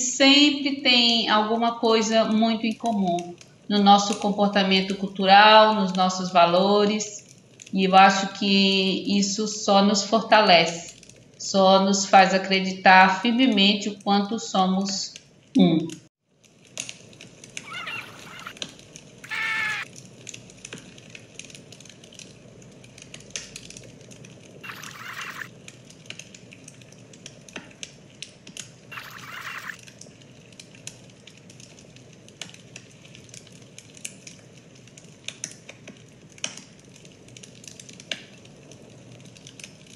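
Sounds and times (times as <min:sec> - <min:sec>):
brief high squeaks: 0:17.6 - 0:18.6, 0:28.9 - 0:29.8.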